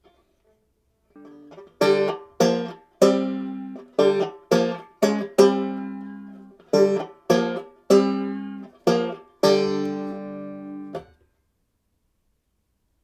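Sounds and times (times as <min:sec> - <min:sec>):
banjo chords strummed: 0:01.2 - 0:11.2.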